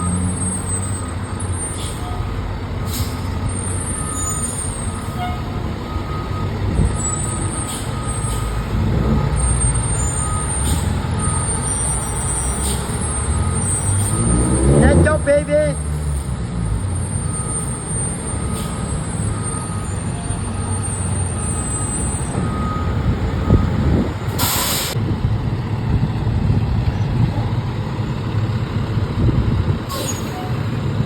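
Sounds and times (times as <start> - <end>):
diesel fire truck rumbling: 0.0 - 31.0
air brake hiss: 2.9 - 3.3, 10.5 - 10.9, 24.4 - 25.0, 29.9 - 30.5.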